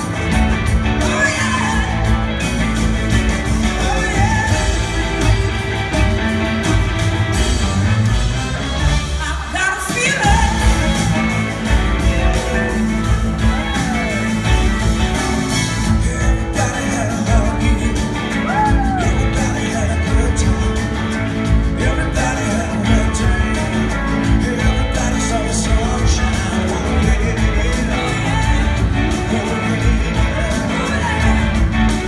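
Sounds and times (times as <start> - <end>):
person singing: 0.0 - 6.3, 9.2 - 32.0
live rock band playing: 0.0 - 32.0.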